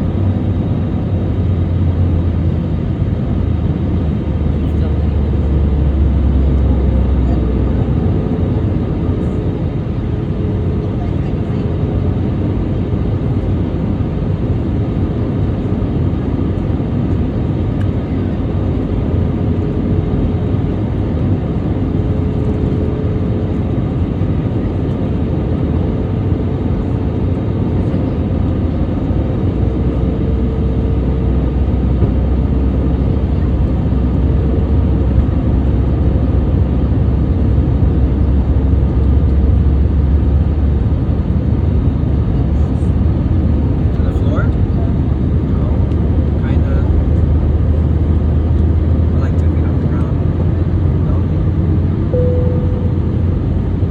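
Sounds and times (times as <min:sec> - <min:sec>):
jet cabin engine rumble: 0:00.0 - 0:53.9
faint steady hum: 0:52.1 - 0:53.9.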